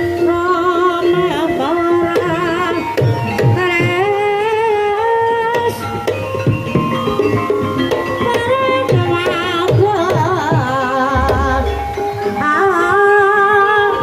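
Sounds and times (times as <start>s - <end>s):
gamelan music: 5.6s - 14.0s
drum strokes: 11.1s - 12.8s
person singing wavering notes: 11.1s - 13.3s.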